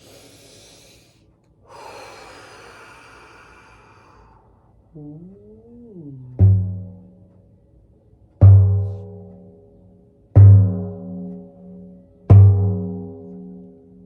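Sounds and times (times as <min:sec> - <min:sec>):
frame drum beats: 0:06.1 - 0:07.4, 0:08.4 - 0:09.6, 0:10.4 - 0:13.7.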